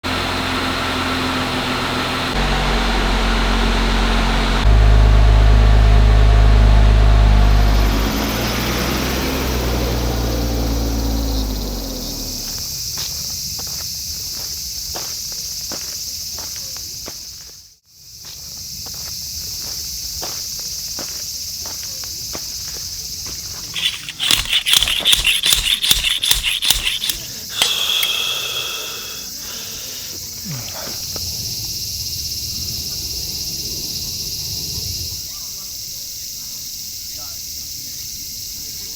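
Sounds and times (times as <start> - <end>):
insects chirring: 7.4 - 38.9
loud sharp clicks and crunches: 23.6 - 29.6.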